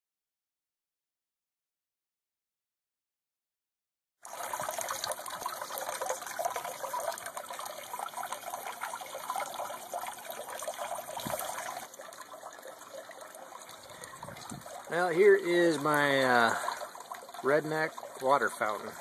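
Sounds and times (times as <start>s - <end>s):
fountain water trickling and splashing: 4.2s - 19.0s.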